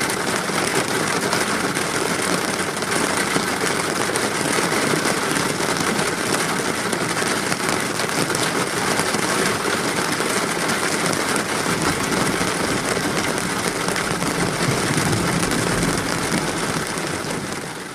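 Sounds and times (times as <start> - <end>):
steady rain: 0.0 - 17.9
low rumble: 11.6 - 17.8.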